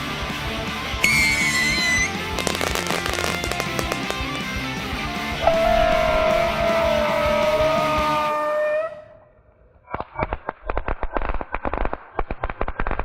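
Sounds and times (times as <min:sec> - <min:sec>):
sharp pops and crackles: 0:02.3 - 0:04.5, 0:09.9 - 0:13.0
music with a falling note: 0:05.3 - 0:08.8.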